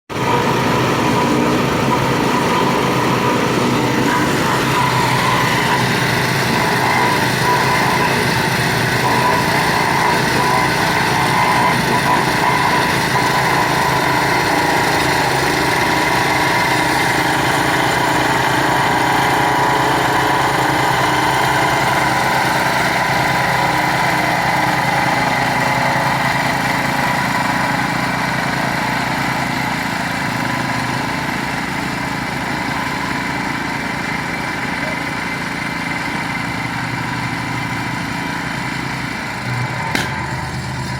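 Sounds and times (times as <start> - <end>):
small engine running: 0.1 - 40.9.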